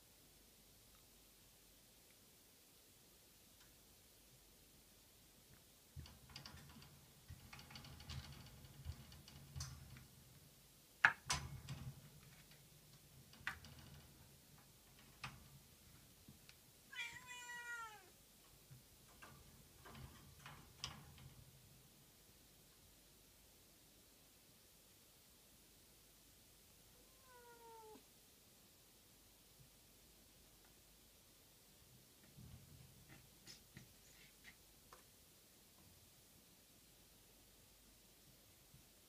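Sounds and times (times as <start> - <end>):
small knocks and clicks: 5.5 - 16.6
kitten meowing: 16.9 - 18.1, 27.0 - 28.0.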